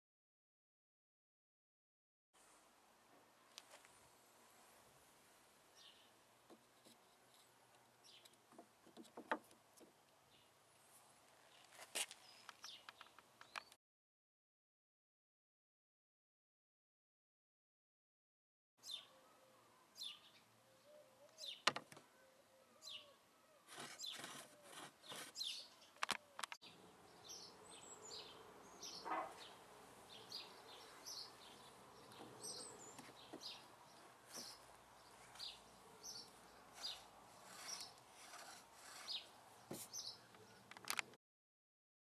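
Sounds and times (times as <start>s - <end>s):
birds chirping: 5.7s - 10.6s, 11.5s - 13.8s, 18.8s - 41.2s.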